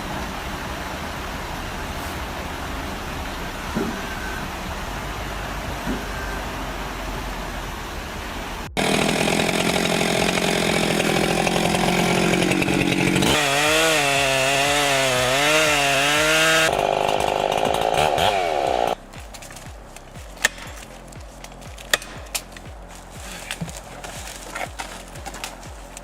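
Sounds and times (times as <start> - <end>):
vehicle hum: 0.0 - 26.0
chainsaw cutting wood: 8.8 - 26.0.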